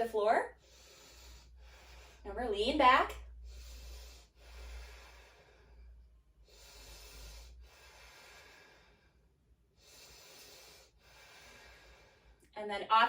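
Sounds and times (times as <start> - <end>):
person breathing slowly: 0.6 - 2.3, 3.3 - 12.5.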